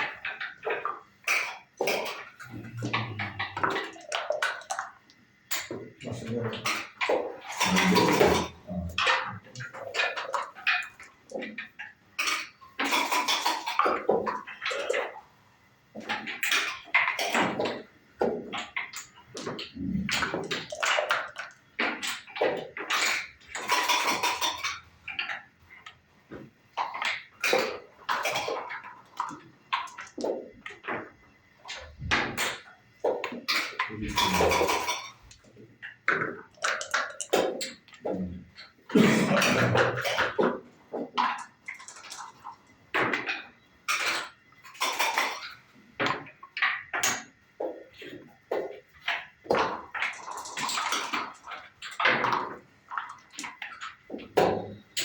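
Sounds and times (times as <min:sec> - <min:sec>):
checkers clacking on wood: 0:18.4 - 0:31.2, 0:31.8 - 0:38.0.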